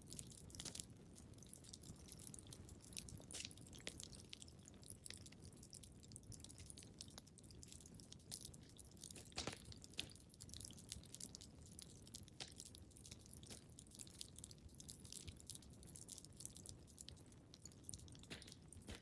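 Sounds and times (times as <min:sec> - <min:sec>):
wood fire crackling: 0:00.0 - 0:19.0
fire pops: 0:09.1 - 0:10.2, 0:12.3 - 0:12.7.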